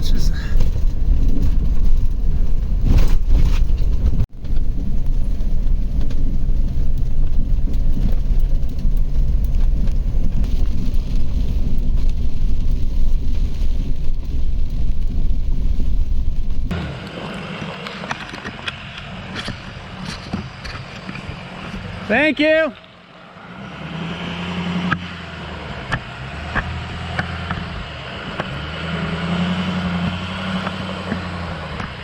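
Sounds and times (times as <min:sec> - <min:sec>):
road rumble: 0:00.0 - 0:32.0
vehicle engine hum: 0:00.0 - 0:32.0.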